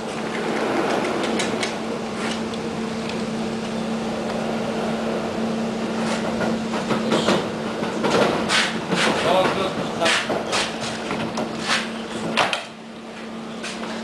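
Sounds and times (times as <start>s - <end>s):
steady electric hum: 0.0s - 14.0s
train rolling noise: 0.0s - 14.0s.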